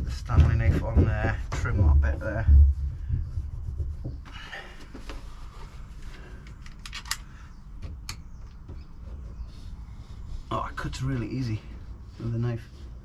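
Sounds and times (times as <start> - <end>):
sharp clicks: 6.5 - 7.3.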